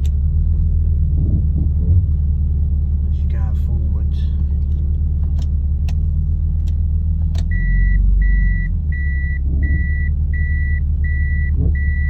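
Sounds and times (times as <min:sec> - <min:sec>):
car engine rumbling: 0:00.0 - 0:12.0
high electronic beep: 0:07.5 - 0:12.0.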